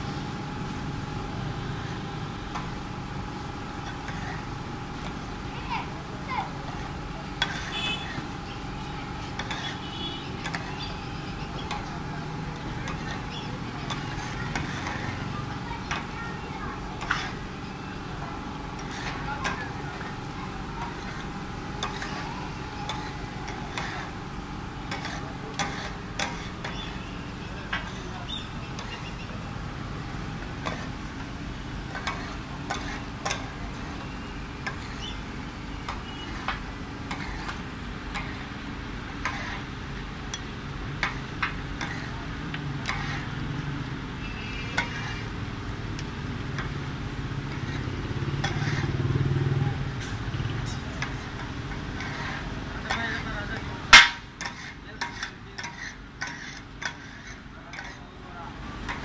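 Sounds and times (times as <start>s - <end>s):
cooking knocks and scrapes: 6.7s - 8.4s, 9.1s - 10.9s, 11.6s - 16.2s, 16.8s - 17.6s, 18.4s - 27.0s, 27.6s - 28.1s, 28.7s - 29.1s, 29.8s - 35.2s, 35.8s - 43.5s, 44.6s - 58.2s, 58.8s - 59.0s.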